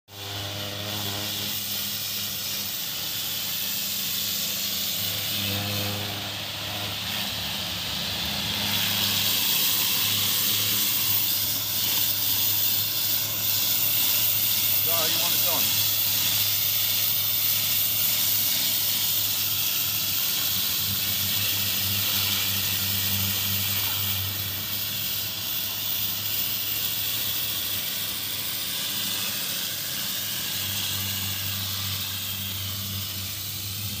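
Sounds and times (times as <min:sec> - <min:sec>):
pressure washer spraying water: 0:00.1 - 0:34.0
motor hum: 0:26.9 - 0:34.0.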